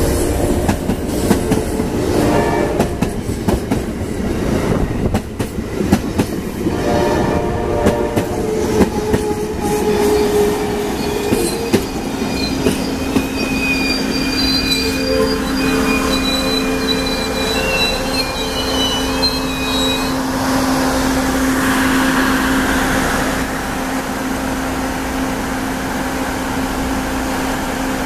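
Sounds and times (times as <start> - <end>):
train low hum: 0.0 - 28.0
train wheels squealing: 8.5 - 23.4
rush of noise: 14.8 - 26.8.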